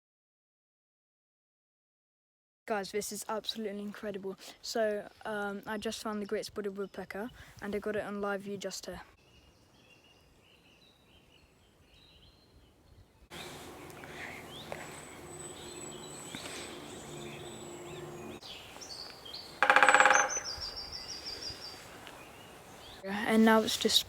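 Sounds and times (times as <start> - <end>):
small birds chirping: 5.6 - 24.0
faint low hum: 13.3 - 18.8.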